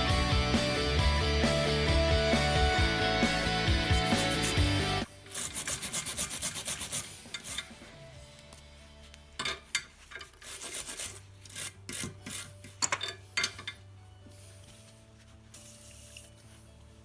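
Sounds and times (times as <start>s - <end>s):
rasping scraping strokes: 3.6s - 8.0s, 10.1s - 12.6s.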